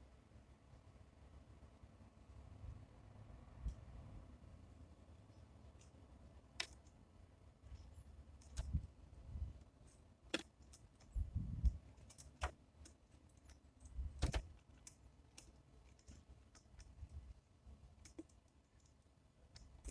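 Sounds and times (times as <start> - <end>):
birds pecking taps and clicks: 18.0 - 19.9.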